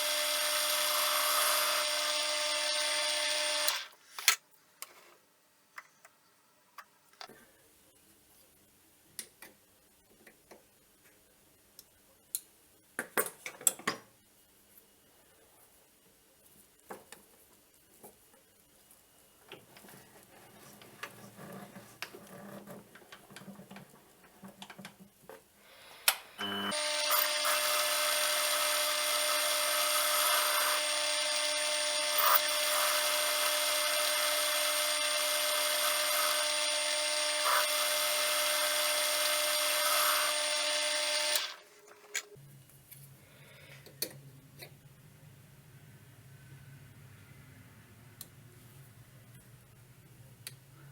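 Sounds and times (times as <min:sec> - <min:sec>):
electric power tool cutting: 0:00.0 - 0:03.9, 0:26.4 - 0:41.6.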